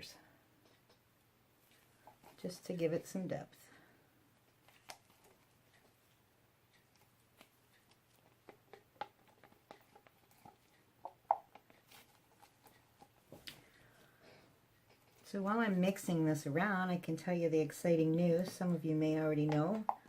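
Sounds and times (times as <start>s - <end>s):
tool tapping and clicking on resin: 8.3s - 11.8s, 19.4s - 20.0s.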